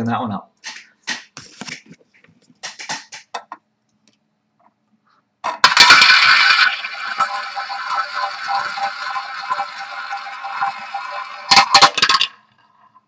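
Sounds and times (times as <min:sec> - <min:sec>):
prize wheel spinning clicks: 0:05.6 - 0:12.2.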